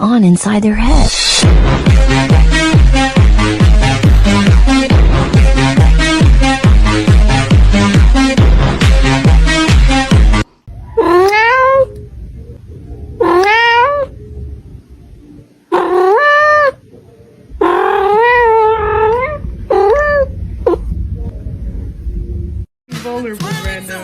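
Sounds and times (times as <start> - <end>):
cat yowling: 10.8 - 12.0, 13.2 - 14.1, 15.7 - 16.8, 17.6 - 20.9.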